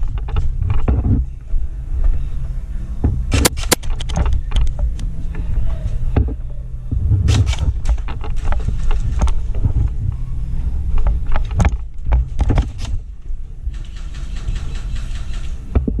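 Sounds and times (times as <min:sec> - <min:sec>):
low rumble of moving camera: 0:00.0 - 0:16.0
sharp snaps: 0:03.3 - 0:05.1.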